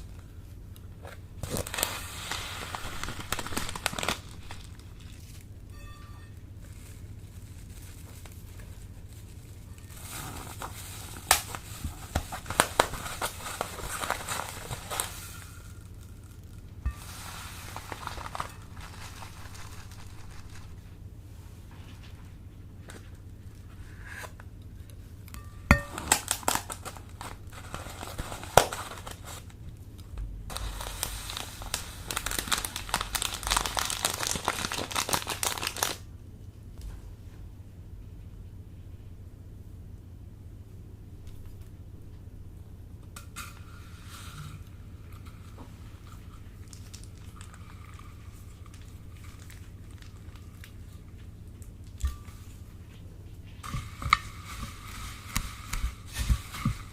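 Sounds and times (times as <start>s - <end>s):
faint low hum: 0.0s - 56.9s
slime crackling and popping: 1.4s - 5.5s, 25.4s - 27.4s, 30.5s - 36.0s
crunchy slime crackling: 1.4s - 5.6s, 6.6s - 21.0s, 25.7s - 29.5s, 30.5s - 36.0s, 45.8s - 52.6s.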